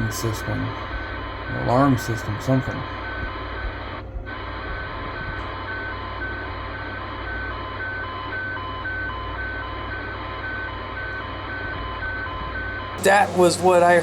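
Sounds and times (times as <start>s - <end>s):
radio static hiss: 0.0s - 7.8s
alternating two-tone beeps: 0.0s - 14.0s
low hum: 0.0s - 14.0s.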